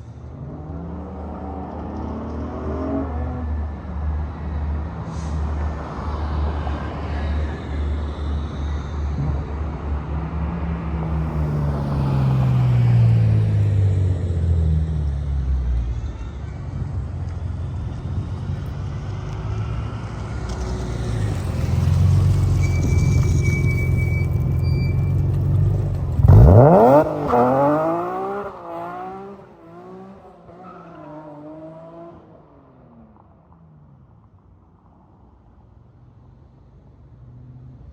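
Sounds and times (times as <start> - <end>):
car engine droning: 17.6 - 32.1
car engine revving: 25.6 - 30.2.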